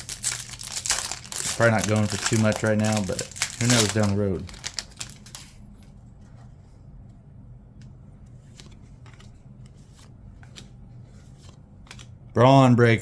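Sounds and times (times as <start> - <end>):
trading cards flipped by hand: 0.0 - 5.6, 8.4 - 12.1
low steady hum: 0.0 - 13.0.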